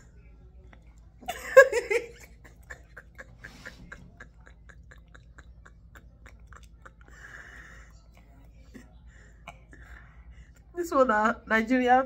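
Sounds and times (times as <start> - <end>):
woman laughing: 1.3 - 7.5
toddler chewing and smacking lips: 4.7 - 7.3.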